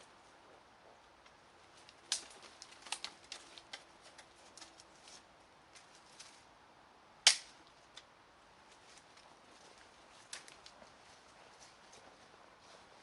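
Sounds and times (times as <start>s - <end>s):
dry wood cracking and snapping: 1.2s - 6.3s, 7.2s - 8.1s, 10.2s - 10.8s.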